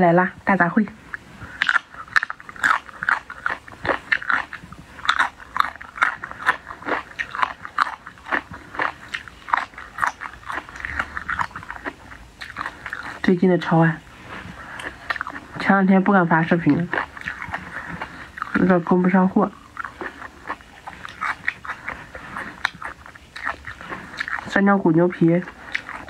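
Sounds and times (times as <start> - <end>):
wet chewing: 1.0 - 26.0
crisp crunching: 1.6 - 13.3.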